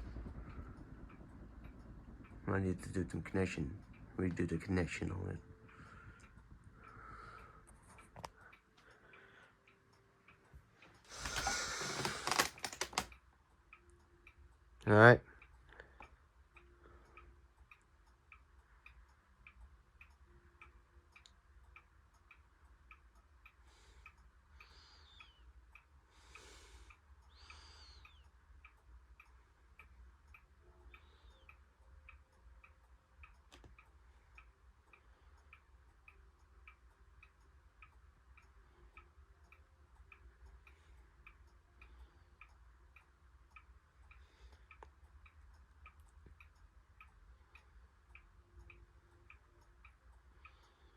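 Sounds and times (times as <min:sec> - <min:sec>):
low hum: 0:00.0 - 0:11.8
faint even ticking: 0:00.0 - 0:50.9.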